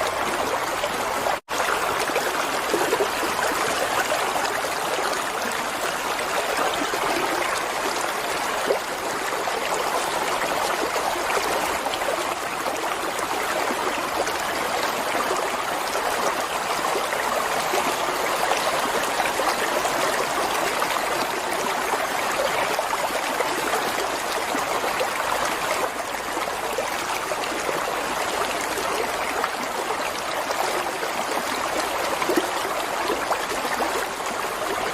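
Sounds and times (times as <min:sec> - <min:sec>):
flowing water: 0:00.0 - 0:34.9.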